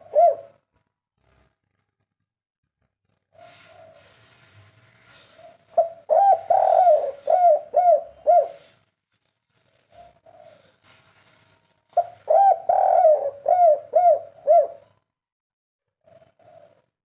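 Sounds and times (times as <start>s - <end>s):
dove cooing: 0.0s - 0.6s, 3.4s - 4.3s, 5.3s - 8.8s, 9.9s - 10.8s, 12.0s - 15.0s, 16.0s - 16.9s.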